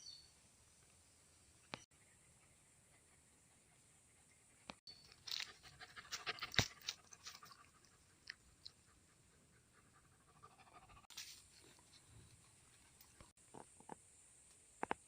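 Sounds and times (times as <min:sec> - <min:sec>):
dog panting: 0:02.1 - 0:13.3.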